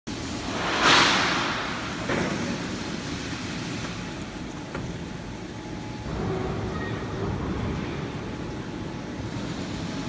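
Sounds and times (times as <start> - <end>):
loud rush of machine noise: 0.1 - 10.0
drilling machine hum: 0.2 - 6.1.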